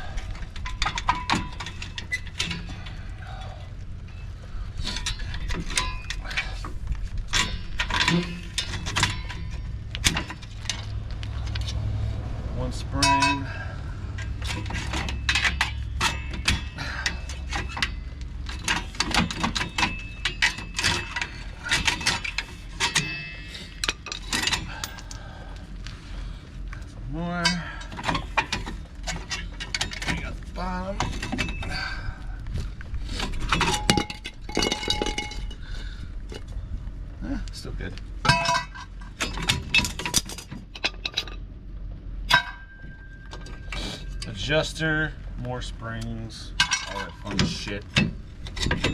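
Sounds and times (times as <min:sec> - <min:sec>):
metal brake parts clinking: 0:00.2 - 0:11.8, 0:13.0 - 0:25.3, 0:27.4 - 0:32.1, 0:33.1 - 0:36.5, 0:38.2 - 0:41.5, 0:42.3 - 0:44.5, 0:46.0 - 0:48.9.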